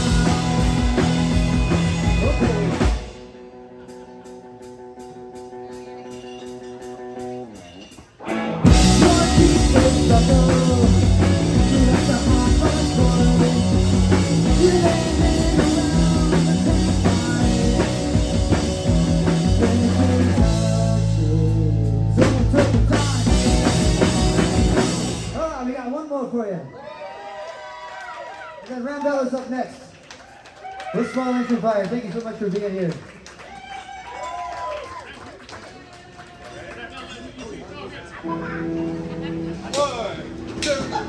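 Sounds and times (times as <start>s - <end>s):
live rock band playing: 0.0s - 25.8s, 38.2s - 41.0s.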